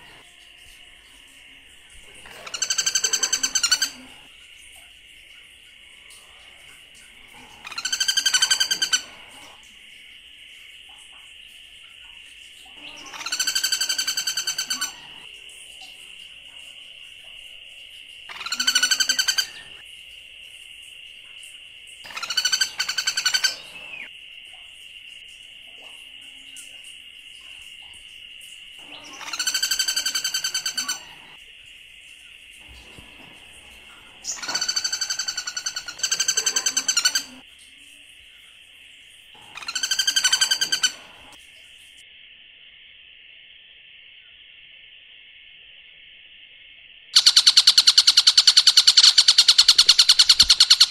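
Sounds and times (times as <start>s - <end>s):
high insect drone: 0.0s - 50.9s
bird trilling call: 2.1s - 4.3s, 7.6s - 9.4s, 12.8s - 15.2s, 18.3s - 19.8s, 22.1s - 24.1s, 28.8s - 31.4s, 34.1s - 37.4s, 39.4s - 41.4s, 47.2s - 50.9s.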